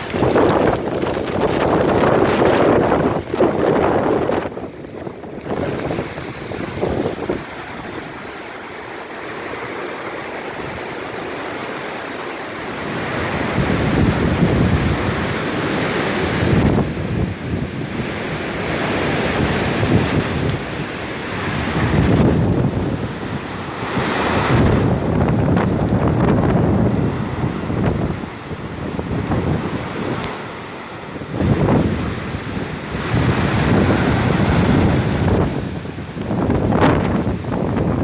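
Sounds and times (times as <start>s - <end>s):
wind buffeting the microphone: 0.0s - 9.2s, 12.6s - 38.0s.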